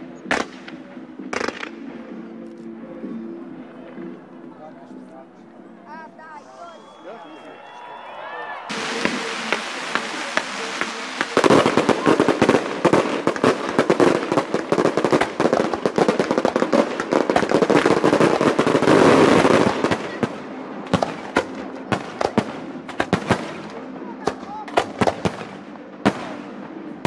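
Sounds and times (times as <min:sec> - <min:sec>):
fireworks crackling and popping: 0:00.2 - 0:01.9, 0:08.6 - 0:27.0.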